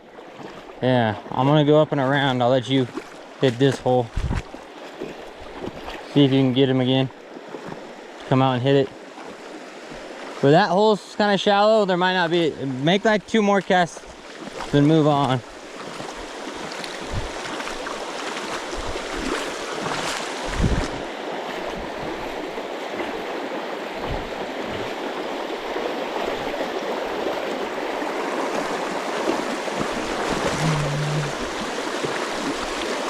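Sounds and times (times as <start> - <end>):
river rushing over rocks: 15.5 - 33.0
soft handling thumps: 24.0 - 24.9.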